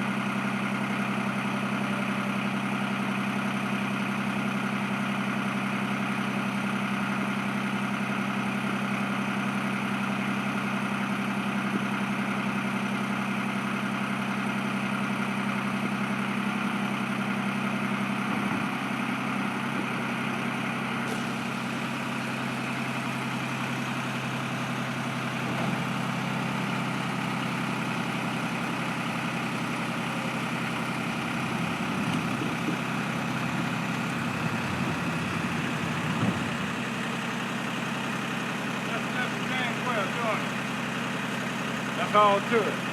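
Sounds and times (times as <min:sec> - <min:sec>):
motor humming steadily: 0:21.0 - 0:42.9.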